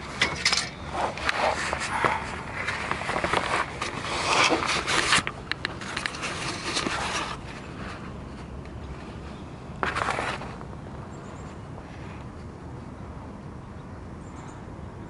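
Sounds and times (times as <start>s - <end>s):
scraping on metal: 0.0s - 8.0s.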